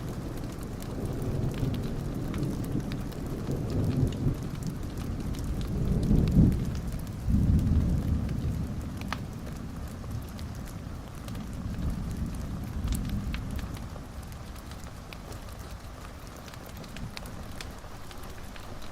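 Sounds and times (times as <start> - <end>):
raindrops ticking: 0.0 - 18.9
steady rain: 0.0 - 18.9
thunder rolling: 0.2 - 15.0.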